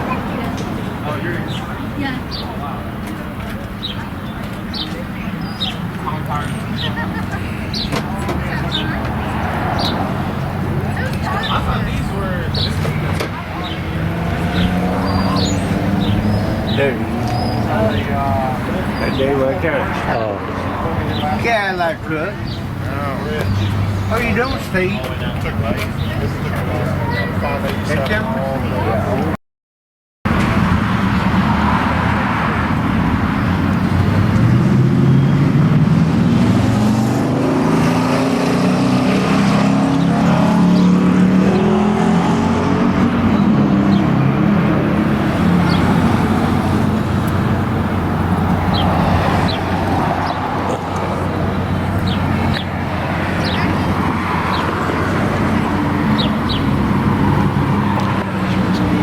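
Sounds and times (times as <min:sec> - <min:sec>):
car engine running: 0:44.0 - 0:59.0.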